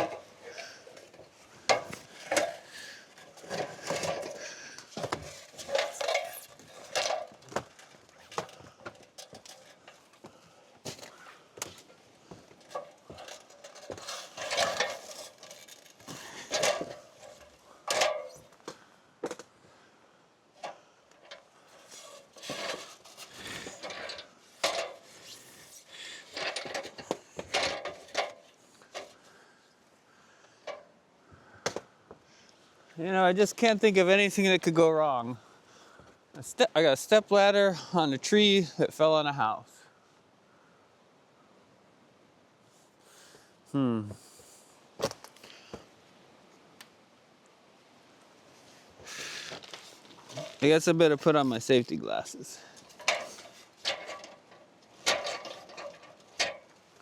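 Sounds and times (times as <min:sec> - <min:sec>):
clanks of hardware and wood: 0:00.0 - 0:10.0, 0:12.6 - 0:18.5, 0:26.3 - 0:29.2, 0:52.6 - 0:56.8.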